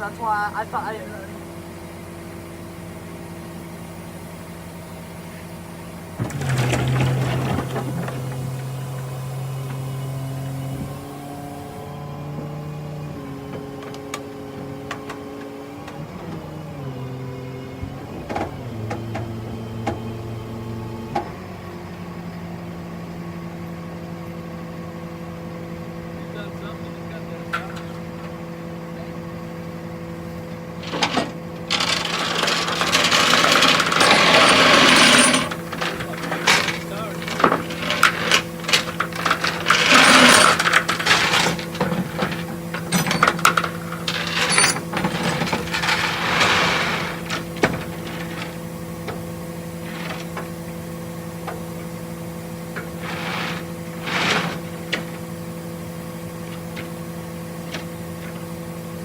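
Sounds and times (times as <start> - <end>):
truck engine under hydraulic load: 1.5 - 26.6, 27.4 - 59.0
sharp metal clanks: 30.8 - 46.2
metal chains clinking: 30.8 - 48.5.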